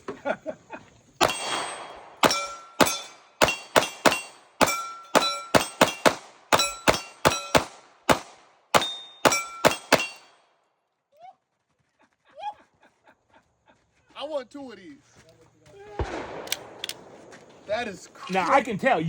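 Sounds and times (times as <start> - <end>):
pistol shots ringing: 1.2 - 10.4, 15.9 - 17.8.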